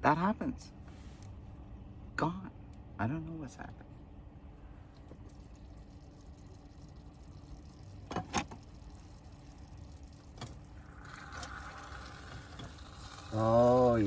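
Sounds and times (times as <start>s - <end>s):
rice simmering in pot: 5.2s - 14.0s.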